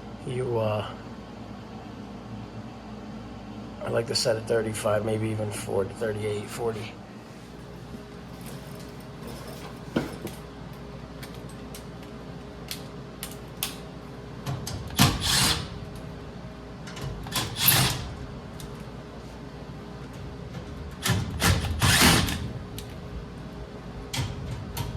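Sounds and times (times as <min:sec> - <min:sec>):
steady low hum: 0:00.0 - 0:24.9
clicks and knocks of tools: 0:08.4 - 0:15.2, 0:16.8 - 0:17.9.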